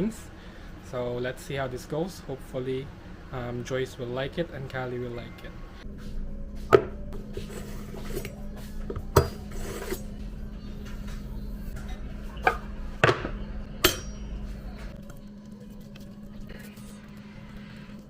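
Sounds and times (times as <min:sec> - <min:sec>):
steady low hum: 0:00.0 - 0:18.0
utensils and cookware clattering: 0:07.3 - 0:15.0.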